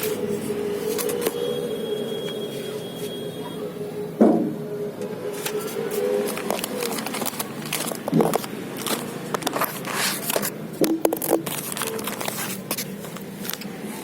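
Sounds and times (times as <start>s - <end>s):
packaging rustling: 0.0s - 1.4s, 5.4s - 13.7s.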